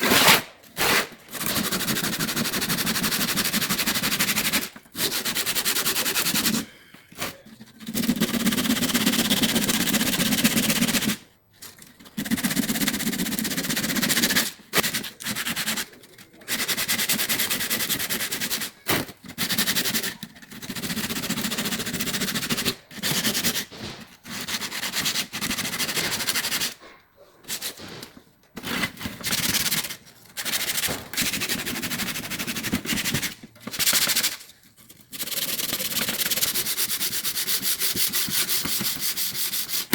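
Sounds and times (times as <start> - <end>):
sanding rust off metal: 1.4 - 6.7, 35.1 - 39.9.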